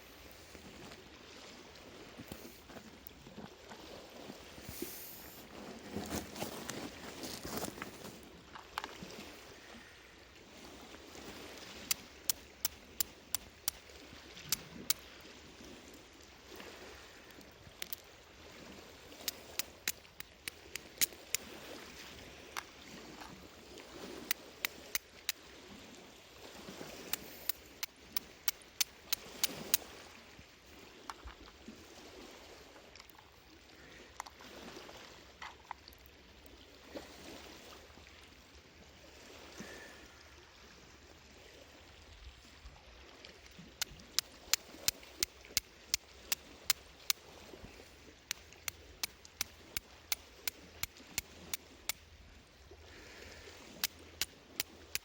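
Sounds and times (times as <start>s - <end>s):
sea waves: 0.0s - 55.0s
campfire crackling and popping: 11.8s - 13.9s, 19.2s - 21.5s, 27.1s - 29.8s, 48.3s - 51.3s.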